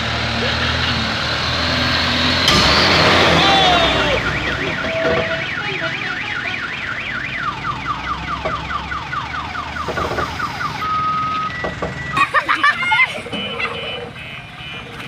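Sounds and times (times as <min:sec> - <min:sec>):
electronic siren warbling: 0:02.5 - 0:12.2.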